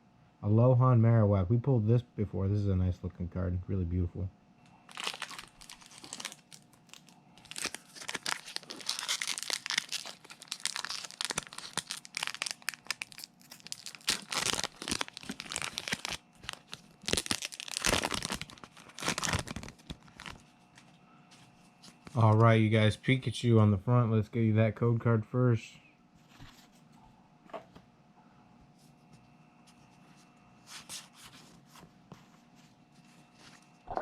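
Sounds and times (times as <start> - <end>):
foil wrapper crinkling and tearing: 4.9 - 20.5.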